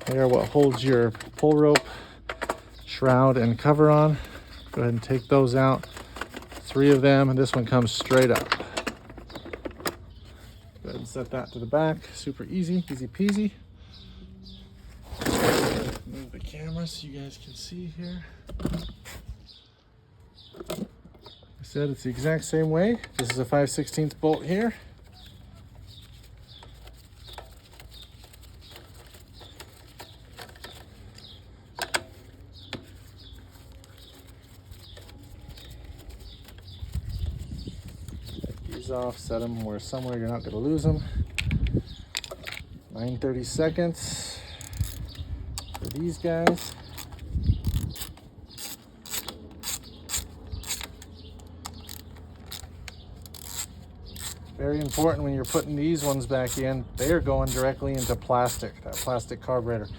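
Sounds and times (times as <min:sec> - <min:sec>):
small bird chirping: 0:24.4 - 0:40.7, 0:44.6 - 0:58.2
socket ratchet clicking: 0:44.6 - 0:59.2.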